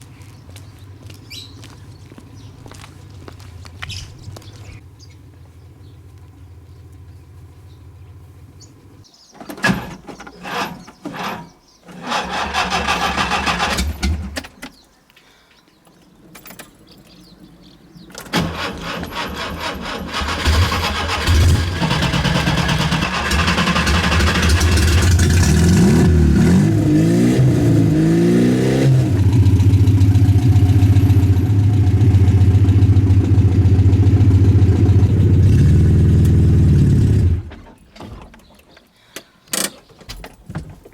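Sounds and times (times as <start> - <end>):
car engine cranking and starting: 9.5 - 14.6, 18.0 - 28.0, 28.8 - 38.3
car engine idling: 29.1 - 37.2.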